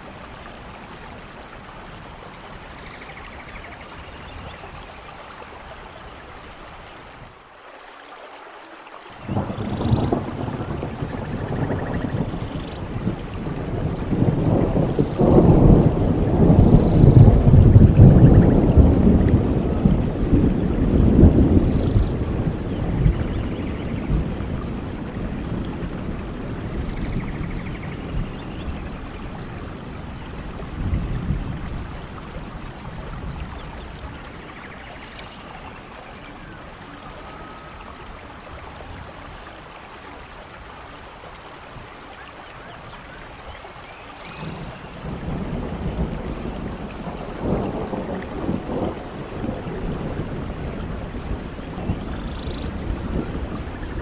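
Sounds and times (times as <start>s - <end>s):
steady rainfall: 0.0s - 54.0s
rolling thunder: 9.2s - 39.2s, 44.2s - 54.0s.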